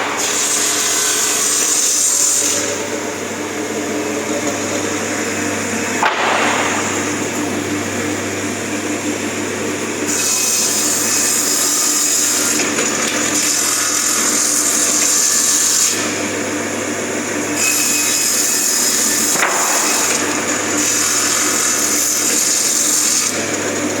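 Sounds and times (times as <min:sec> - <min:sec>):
saw motor hum: 0:00.0 - 0:24.0
sharp knock: 0:06.0 - 0:07.5.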